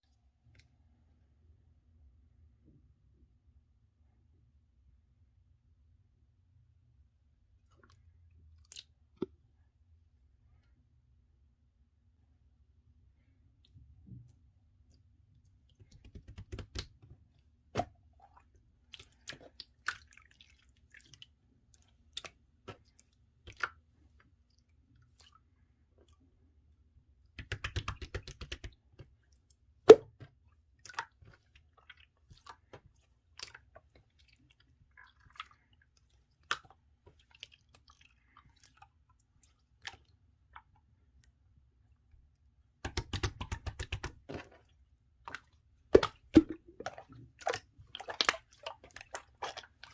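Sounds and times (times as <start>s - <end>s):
slime squelching and clicking: 27.3s - 41.4s, 42.7s - 49.9s.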